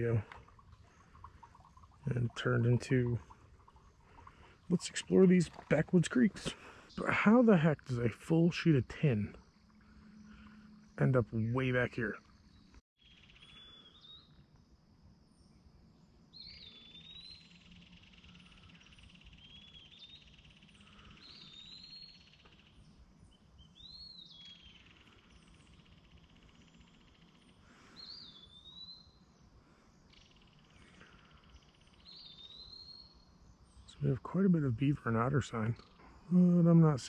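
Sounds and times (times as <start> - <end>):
bird whistling calls: 16.4 - 18.4, 19.0 - 22.4.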